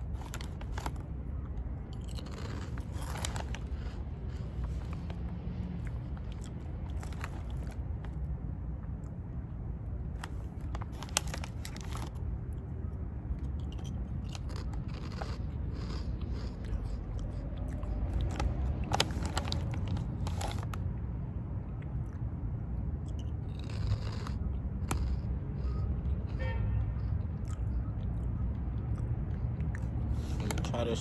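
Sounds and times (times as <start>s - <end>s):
crunching shrimp chips: 0.0s - 8.2s, 10.1s - 12.7s, 13.4s - 20.8s, 23.0s - 25.8s.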